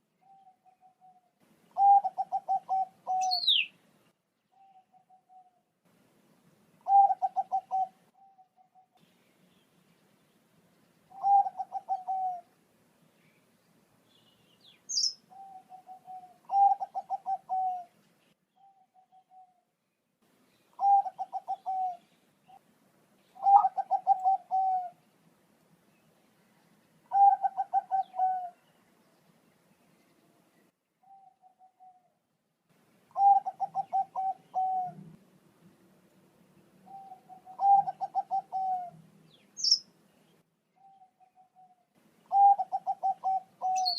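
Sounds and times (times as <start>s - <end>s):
dove cooing: 0.2s - 3.7s, 6.8s - 9.0s, 11.1s - 12.5s, 14.9s - 18.0s, 18.6s - 19.6s, 20.7s - 22.6s, 23.4s - 25.0s, 27.1s - 28.7s, 31.0s - 32.2s, 33.1s - 35.2s, 36.8s - 39.0s, 40.8s - 43.9s
high bird chirp: 1.8s - 3.8s, 14.1s - 17.8s, 36.9s - 39.9s, 42.3s - 43.9s.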